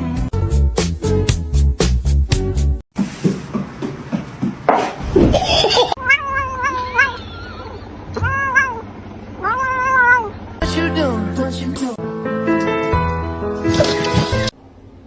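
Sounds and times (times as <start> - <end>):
cat meowing: 6.0 - 10.4.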